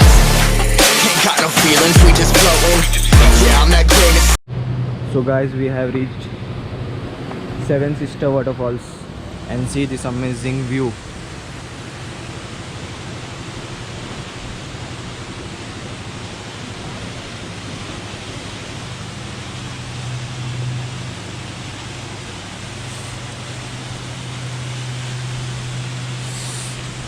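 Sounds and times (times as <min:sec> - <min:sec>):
low steady hum: 0:04.5 - 0:27.0
waterfall pouring: 0:10.0 - 0:27.0.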